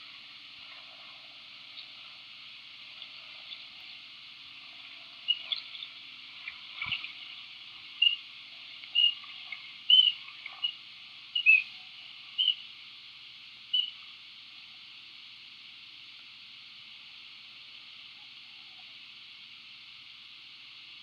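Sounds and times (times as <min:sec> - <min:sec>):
steady high hiss: 0:00.0 - 0:21.0
bird chirps: 0:08.0 - 0:08.2, 0:08.9 - 0:09.2, 0:09.9 - 0:10.8, 0:11.4 - 0:11.7, 0:12.4 - 0:12.6, 0:13.7 - 0:14.0.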